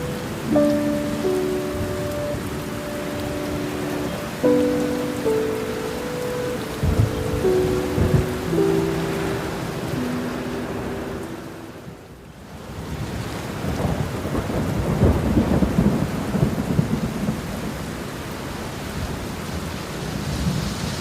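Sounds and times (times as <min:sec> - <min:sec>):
steady rain: 0:00.0 - 0:21.0
rolling thunderclap: 0:06.8 - 0:08.4, 0:13.6 - 0:17.6.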